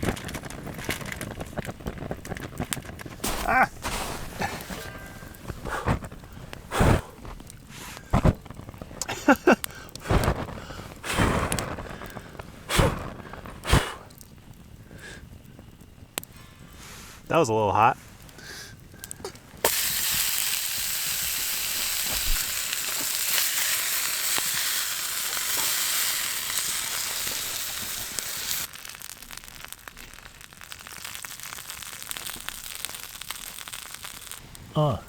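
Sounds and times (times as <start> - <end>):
fire crackling: 0.0 - 35.0
food sizzling in a pan: 19.6 - 34.4.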